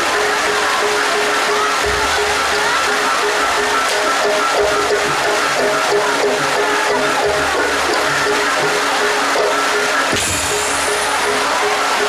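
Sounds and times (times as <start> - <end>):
gamelan music: 0.0 - 12.0
sharp crash: 10.1 - 11.6
high ringing shimmer: 10.2 - 11.7.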